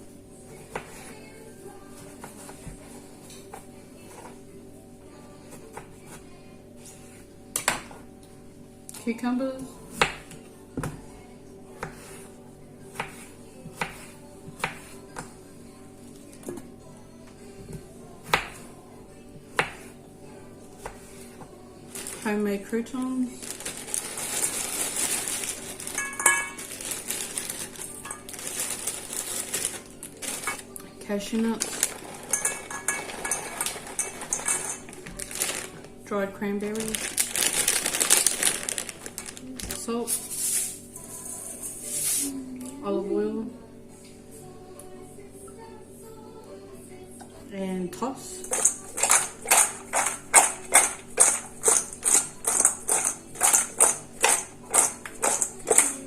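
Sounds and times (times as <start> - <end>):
croutons rattling into a bowl: 23.4 - 30.6, 31.6 - 35.8, 36.8 - 39.7.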